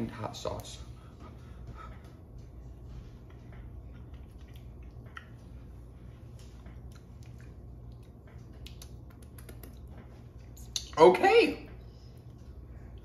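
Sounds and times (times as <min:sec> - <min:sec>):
steady low hum: 0:00.0 - 0:13.0
person chewing: 0:03.2 - 0:05.8, 0:06.4 - 0:11.0.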